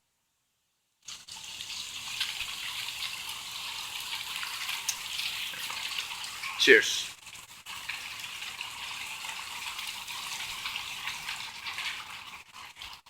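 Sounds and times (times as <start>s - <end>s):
steady rain falling: 6.6s - 7.1s.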